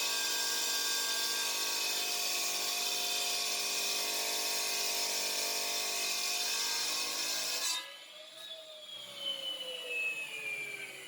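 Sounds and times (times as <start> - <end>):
saw grinding through brick: 0.0 - 8.0.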